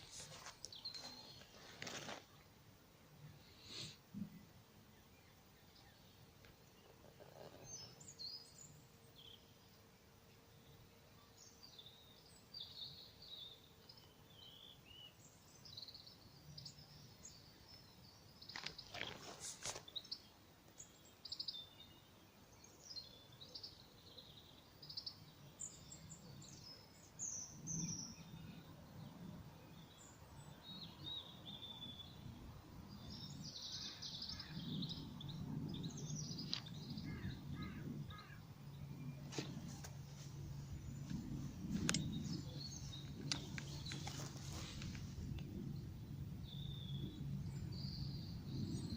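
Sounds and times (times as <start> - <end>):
birds chirping and calling: 33.0 - 45.2
low rustling rumble: 34.8 - 48.9.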